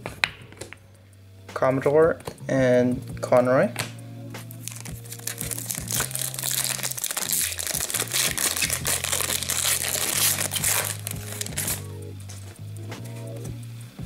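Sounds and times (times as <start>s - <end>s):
background music with bass line: 0.0s - 14.0s
plastic wrapper crinkling: 4.6s - 11.9s.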